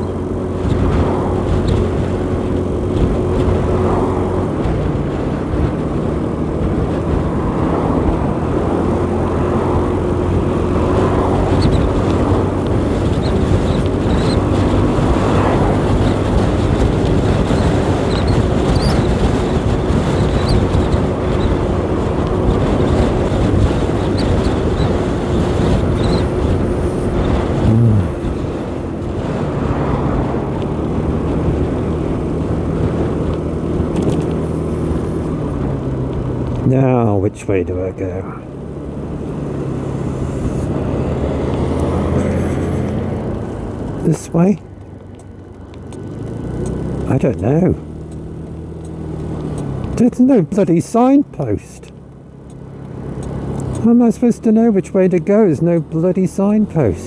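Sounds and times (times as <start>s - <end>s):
motorcycle engine running: 0.0s - 37.1s, 38.0s - 57.0s
steady rushing noise: 0.2s - 37.2s.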